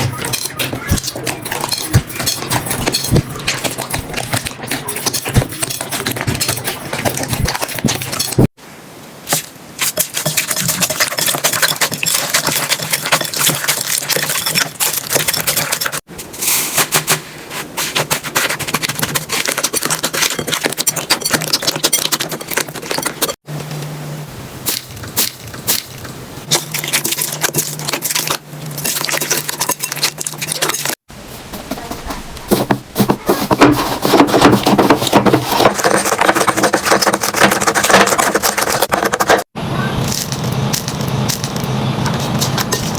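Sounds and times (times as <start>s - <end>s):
slime crackling and popping: 40.1s - 41.7s.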